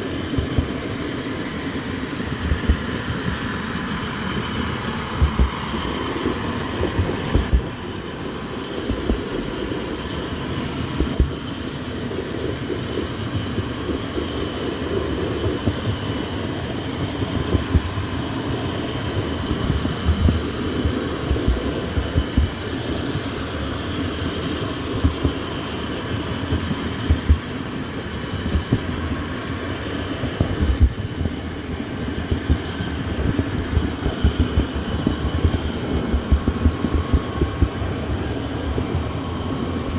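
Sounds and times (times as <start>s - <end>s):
train wheels rumbling on rails: 0.0s - 39.9s
low thumps: 5.2s - 5.6s, 6.8s - 8.0s, 19.5s - 22.6s, 32.3s - 37.8s.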